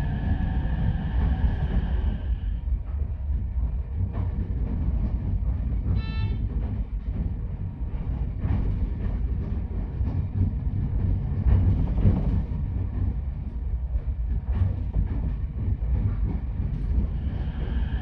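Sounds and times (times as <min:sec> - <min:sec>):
railcar rumbling: 0:00.0 - 0:18.0
train horn toot: 0:05.9 - 0:06.6.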